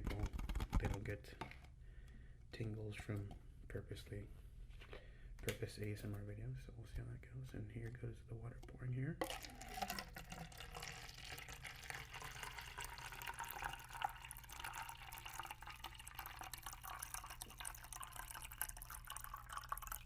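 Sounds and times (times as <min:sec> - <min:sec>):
water drips and splashes: 0:09.2 - 0:20.0
water trickling into a cup: 0:09.2 - 0:20.0.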